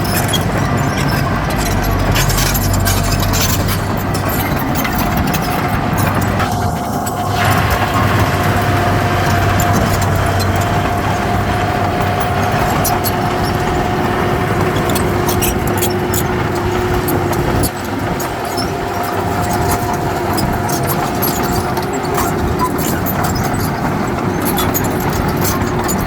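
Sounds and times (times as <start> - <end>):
heavy diesel engine running: 0.0 - 26.0
sharp clicks and clanks: 0.0 - 26.0
high whine: 0.3 - 21.2.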